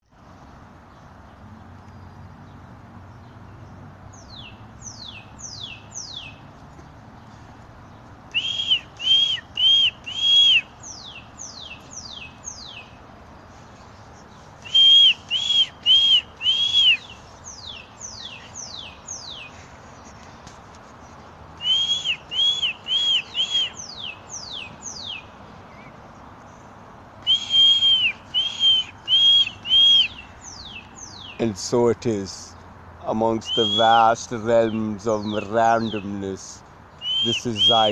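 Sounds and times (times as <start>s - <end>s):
songbird whistled song: 4.1s - 6.5s, 7.9s - 20.3s, 21.0s - 26.4s, 27.2s - 31.4s, 33.4s - 36.1s, 36.9s - 37.9s.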